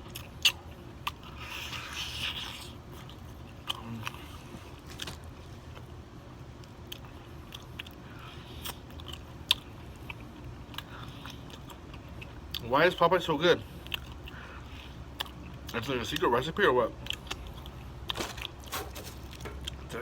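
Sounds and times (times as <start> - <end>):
crunching fried chicken: 0.0 - 20.0.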